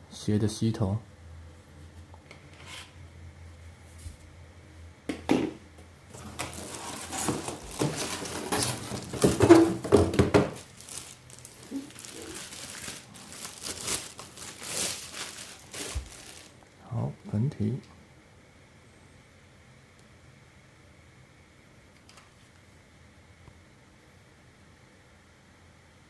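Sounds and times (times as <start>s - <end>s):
packaging crinkling and rustling: 6.1s - 16.7s.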